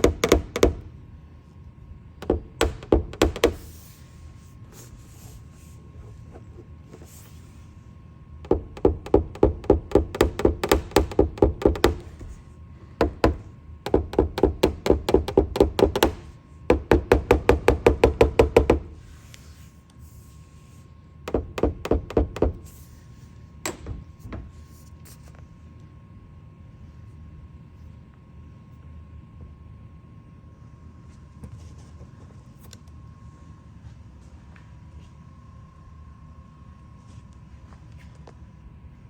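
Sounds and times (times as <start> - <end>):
hammer tapping on car roof: 0.0 - 0.9, 2.2 - 3.7, 8.4 - 12.4, 13.0 - 19.0, 21.3 - 22.7.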